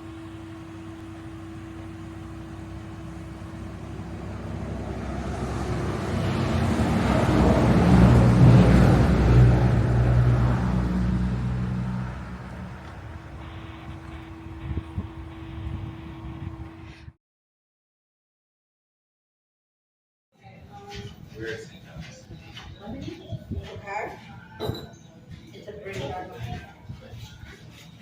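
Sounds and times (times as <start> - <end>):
vehicle driving past: 0.6 - 17.1.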